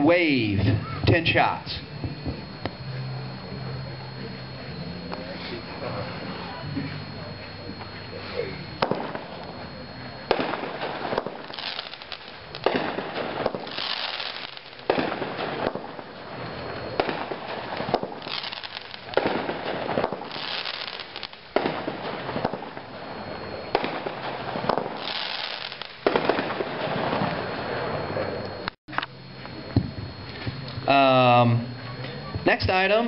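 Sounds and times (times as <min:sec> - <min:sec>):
firework bangs: 0:00.6 - 0:03.4, 0:08.6 - 0:28.4
firework hissing and crackling: 0:08.1 - 0:28.0.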